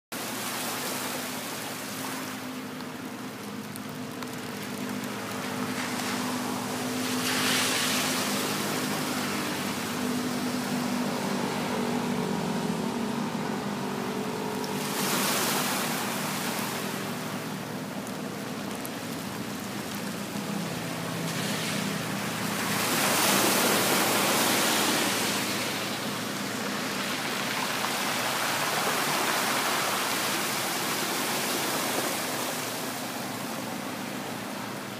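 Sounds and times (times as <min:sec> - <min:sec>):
sea waves washing ashore: 0:00.1 - 0:34.9.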